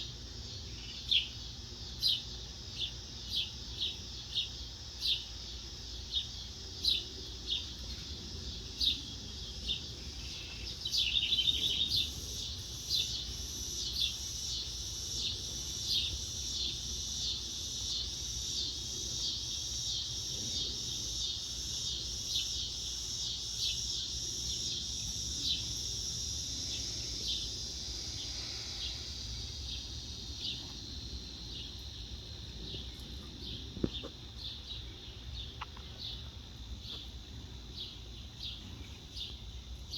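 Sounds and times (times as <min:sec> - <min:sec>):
high insect hum: 0:00.0 - 0:39.9
small birds chirping: 0:00.0 - 0:39.9
bird trill: 0:10.2 - 0:14.7.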